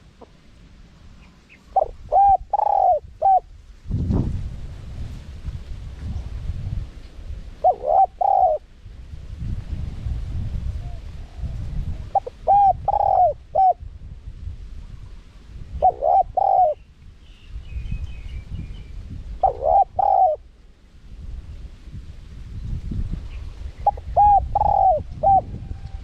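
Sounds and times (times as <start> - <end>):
dove cooing: 1.2 - 3.5, 7.6 - 8.7, 10.8 - 13.8, 15.8 - 16.8, 19.4 - 20.4, 23.8 - 26.0.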